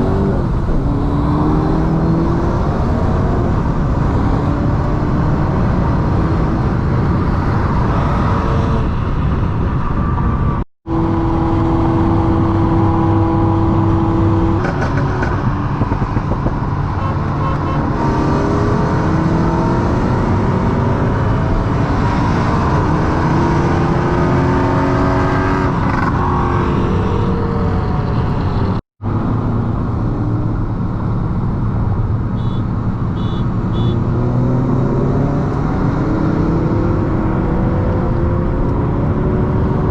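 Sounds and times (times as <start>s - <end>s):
car engine accelerating: 0.0s - 9.2s
road and wind noise: 0.0s - 39.9s.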